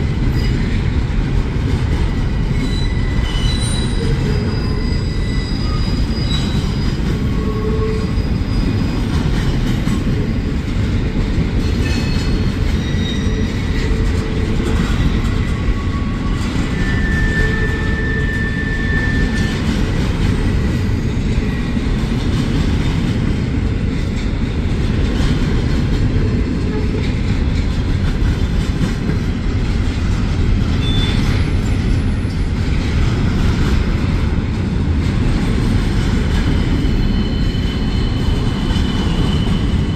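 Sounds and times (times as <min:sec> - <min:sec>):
train wheels rumbling on rail: 0:00.0 - 0:39.9
high wheel squeals: 0:02.6 - 0:09.0, 0:11.9 - 0:14.0, 0:15.6 - 0:19.6, 0:36.7 - 0:39.9.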